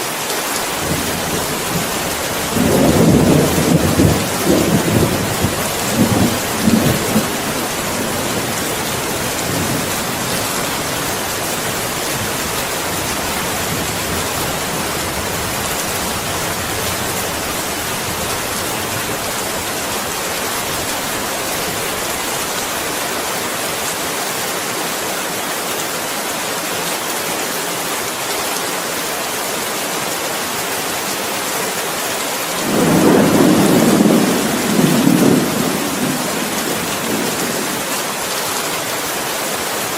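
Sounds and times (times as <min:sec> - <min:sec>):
rain hissing: 0:00.0 - 0:24.2, 0:32.5 - 0:39.9
thunder rumbling: 0:00.7 - 0:22.0, 0:32.6 - 0:38.1.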